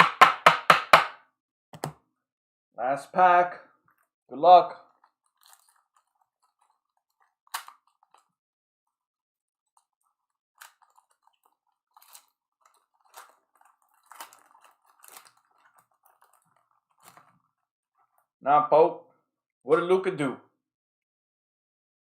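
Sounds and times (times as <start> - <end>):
wrapper crinkling: 4.8 - 18.3
card pack wrapper tearing: 4.9 - 8.4, 9.7 - 17.6.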